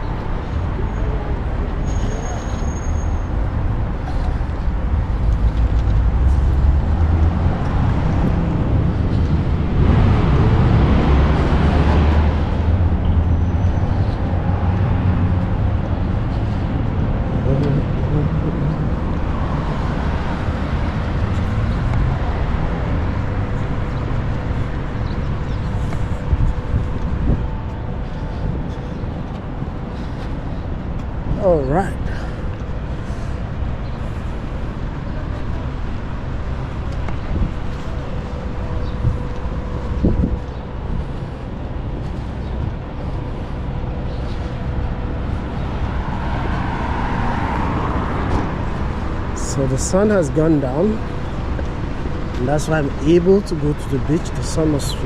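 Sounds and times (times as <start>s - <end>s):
road traffic rumble: 0.0s - 55.0s
vehicle passing close by: 5.6s - 16.0s, 45.3s - 49.6s.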